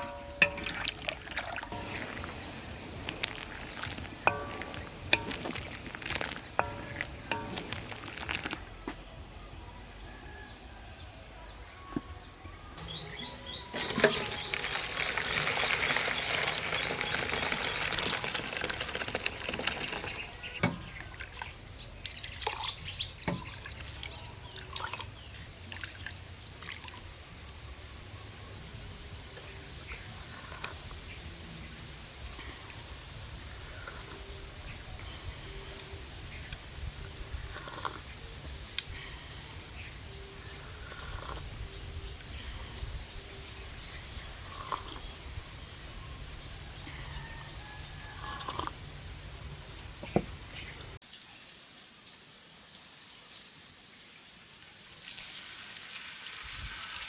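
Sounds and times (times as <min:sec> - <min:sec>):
liquid pouring: 0:00.0 - 0:08.6, 0:13.7 - 0:27.1
bird chirping: 0:11.4 - 0:18.2.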